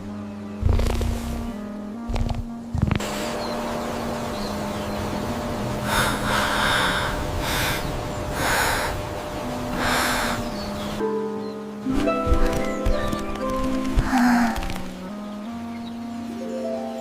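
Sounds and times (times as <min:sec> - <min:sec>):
faint steady hum: 0:01.4 - 0:11.2
slow breathing: 0:05.8 - 0:09.1, 0:09.7 - 0:10.6.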